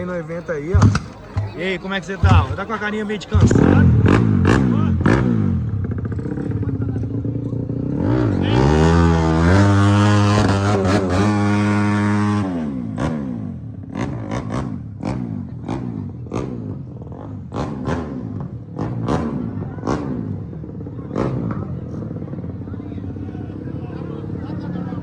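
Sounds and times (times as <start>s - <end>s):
exhaust pops and cracks: 0.7s - 1.6s
motorcycle engine revving: 0.7s - 1.6s, 3.2s - 25.0s.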